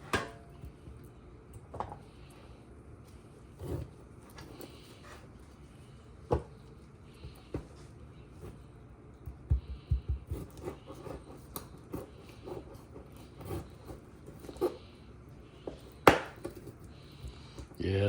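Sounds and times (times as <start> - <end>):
knife cutting meat on board: 9.7 - 14.8.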